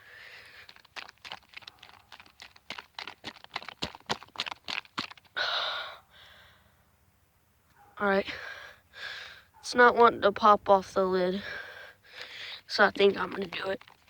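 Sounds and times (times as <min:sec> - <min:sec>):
plastic bottle crackling and clicking: 0:00.4 - 0:05.3, 0:12.9 - 0:14.0.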